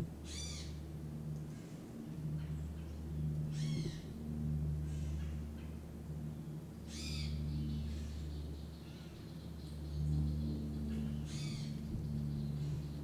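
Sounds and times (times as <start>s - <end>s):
bird harsh calls: 0.3s - 0.8s, 3.5s - 4.1s, 6.9s - 13.0s.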